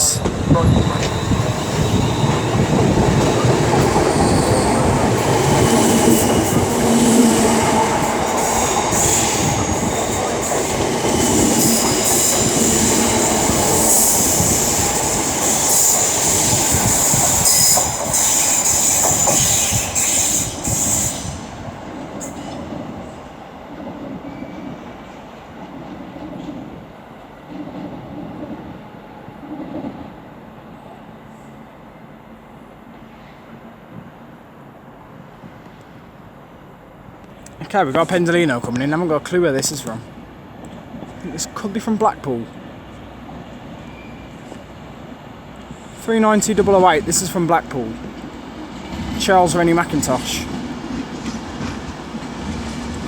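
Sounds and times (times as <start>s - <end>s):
electric train running: 0.0s - 21.5s
train wheels squealing: 0.0s - 21.6s, 24.2s - 24.9s, 43.7s - 44.7s
rail noise: 0.0s - 53.0s.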